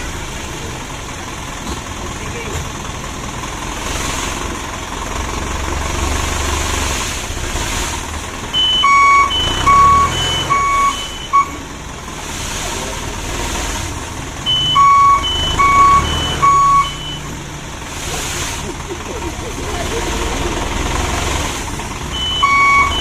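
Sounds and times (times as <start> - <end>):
diesel engine running low: 0.0 - 23.0
reversing alarm beeping: 8.4 - 11.7, 14.4 - 17.4, 22.1 - 23.0.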